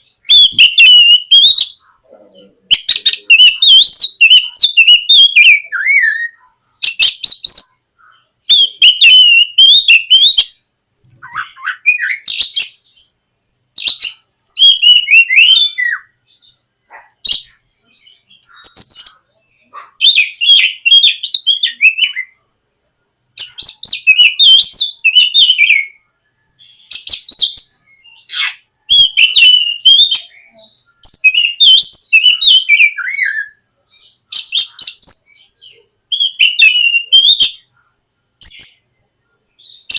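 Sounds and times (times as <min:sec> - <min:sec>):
bird singing whistled phrases: 0:00.1 - 0:01.9, 0:02.7 - 0:10.6, 0:11.2 - 0:13.1, 0:13.8 - 0:22.4, 0:23.4 - 0:26.0, 0:26.6 - 0:37.7, 0:38.4 - 0:38.9.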